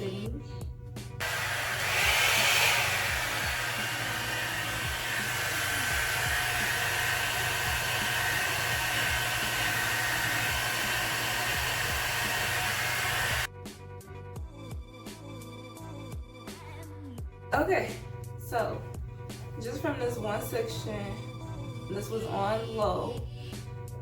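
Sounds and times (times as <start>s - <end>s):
hair dryer brush air rushing: 1.2s - 13.5s.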